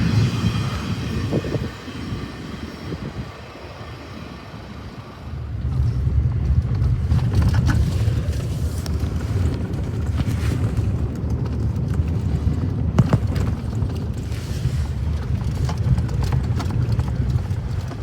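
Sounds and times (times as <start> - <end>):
vehicle rumbling on dirt road: 0.0 - 18.0
knocks and rattles: 9.0 - 18.0.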